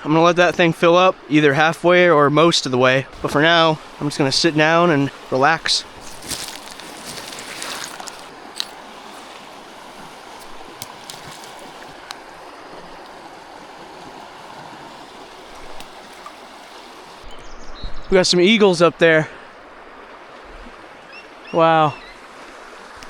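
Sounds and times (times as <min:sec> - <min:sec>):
creek water rushing: 0:00.0 - 0:17.5, 0:18.1 - 0:23.0
faint clicks: 0:03.2 - 0:17.3.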